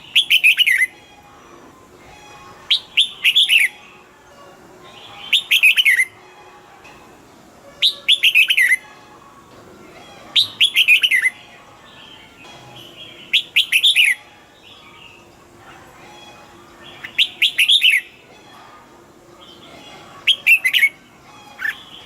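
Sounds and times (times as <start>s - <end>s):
bulbul whistled phrases: 0.0s - 1.0s, 2.7s - 3.8s, 5.0s - 6.1s, 7.8s - 8.8s, 10.3s - 11.4s, 12.8s - 14.3s, 16.8s - 18.2s, 20.2s - 21.0s.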